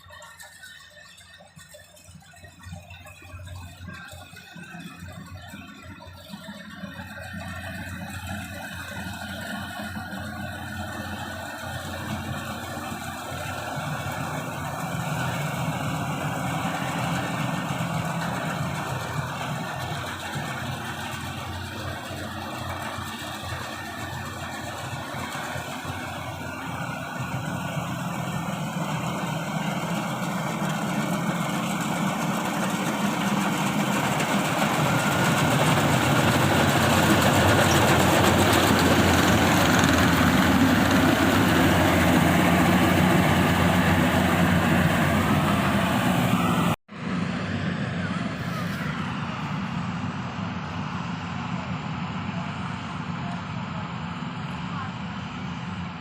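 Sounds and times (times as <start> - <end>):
combine harvester diesel engine: 0.0 - 56.0.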